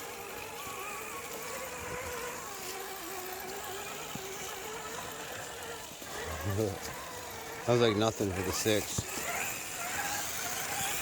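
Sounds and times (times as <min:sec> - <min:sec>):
toy car electric motor whining: 0:00.0 - 0:11.0.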